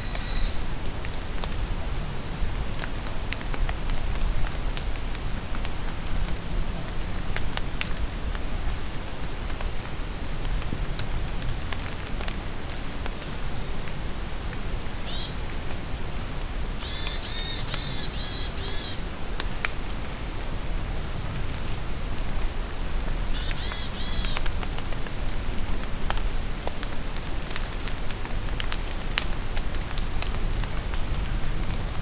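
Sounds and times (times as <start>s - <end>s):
rain falling in a forest: 0.0s - 32.0s
birds singing: 16.6s - 19.1s, 23.4s - 24.4s
raindrops ticking: 21.5s - 32.0s.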